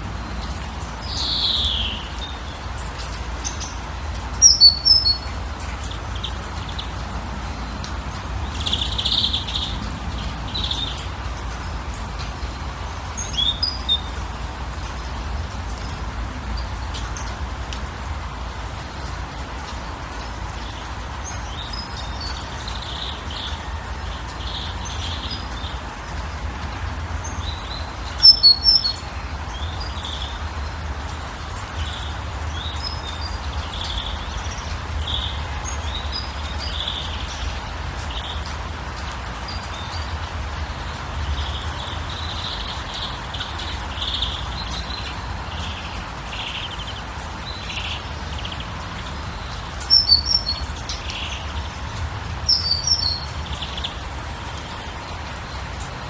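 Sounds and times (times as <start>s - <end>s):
background hiss and rumble: 0.0s - 56.0s
birds chirping and calling: 1.2s - 7.1s, 27.2s - 30.6s, 31.4s - 55.2s.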